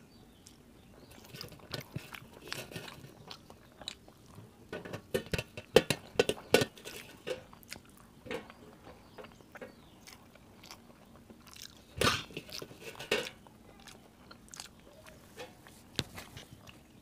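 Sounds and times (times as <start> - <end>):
wet mouth smacks and chewing: 0.4 - 4.4, 9.7 - 12.7, 13.8 - 15.2.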